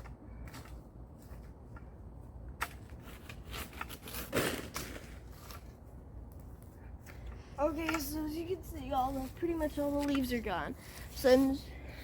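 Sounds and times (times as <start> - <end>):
pruning saw cutting stalks: 2.5 - 5.8.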